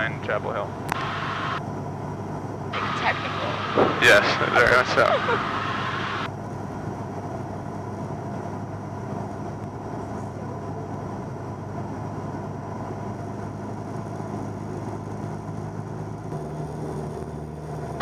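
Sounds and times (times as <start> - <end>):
propeller plane engine drone: 0.0 - 18.0.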